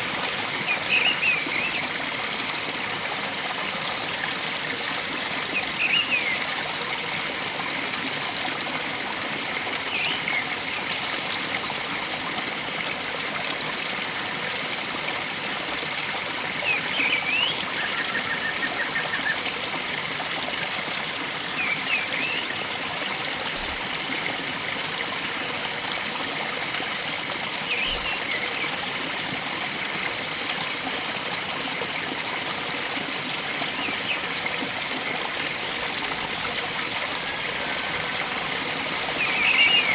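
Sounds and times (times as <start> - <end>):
flowing water rushing: 0.0 - 39.9
bird call: 39.1 - 39.9
bird trill: 39.1 - 39.9.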